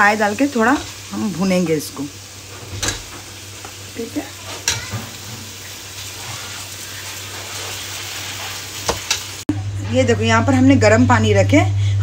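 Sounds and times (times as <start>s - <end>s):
meat sizzling in paste: 0.0s - 9.5s.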